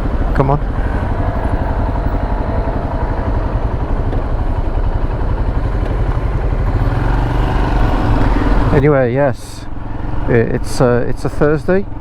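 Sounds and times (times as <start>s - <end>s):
motorcycle engine running at low revs: 0.0s - 9.1s.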